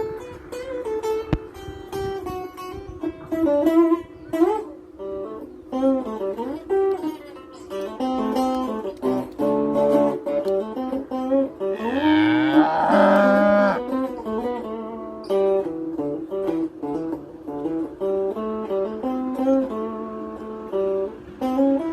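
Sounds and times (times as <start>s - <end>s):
acoustic guitar music: 0.0s - 21.9s
cow mooing: 11.7s - 13.9s.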